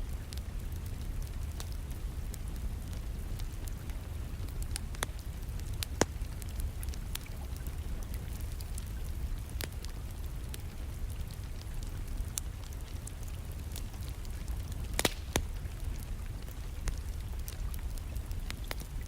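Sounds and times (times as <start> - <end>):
wood fire crackling: 0.0 - 19.0
fire pops: 13.8 - 19.0.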